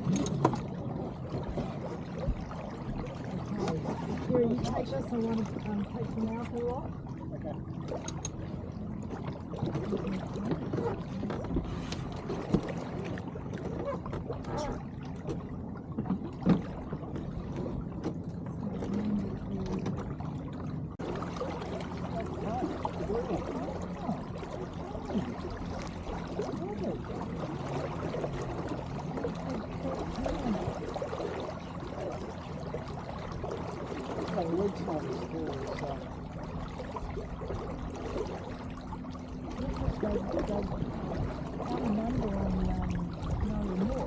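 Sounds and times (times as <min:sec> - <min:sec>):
steady low rumble: 0:00.0 - 0:44.0
water gurgling along boat hull: 0:00.0 - 0:44.0.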